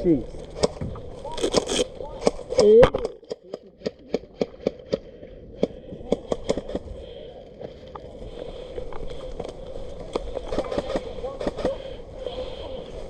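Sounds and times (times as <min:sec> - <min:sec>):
steady low hum: 0:00.0 - 0:13.0
sharp clicks and pops: 0:00.4 - 0:06.9.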